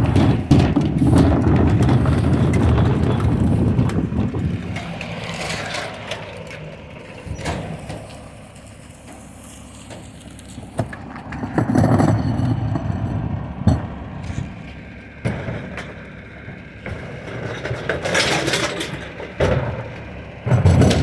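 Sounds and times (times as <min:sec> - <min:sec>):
recycling truck running: 0:00.0 - 0:21.0.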